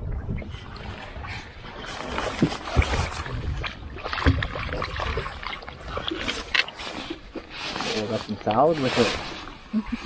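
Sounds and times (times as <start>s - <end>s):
water splashing against boat: 0.0s - 10.0s.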